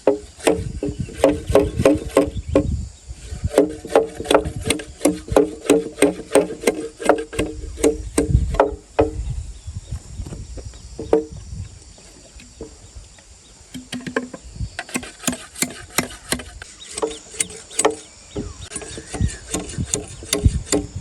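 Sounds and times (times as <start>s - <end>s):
hollow bamboo knocks: 0.0s - 2.7s, 3.5s - 9.2s, 11.0s - 11.4s, 13.8s - 20.9s.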